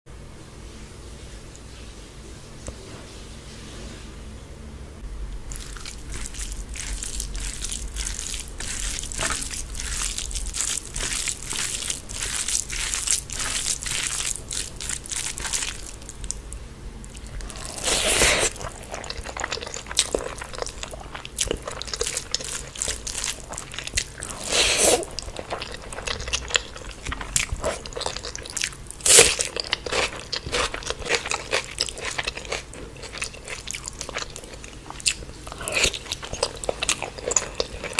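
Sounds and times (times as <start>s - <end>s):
chewing and biting: 5.5s - 16.4s, 17.1s - 37.9s
loud bites or slurps: 17.6s - 18.6s, 24.4s - 25.1s.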